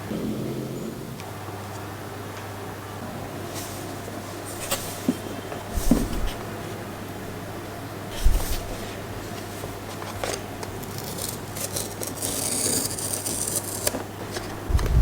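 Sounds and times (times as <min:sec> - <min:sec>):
packaging rubbing and scraping: 0:08.1 - 0:15.0
low steady hum: 0:14.1 - 0:15.0.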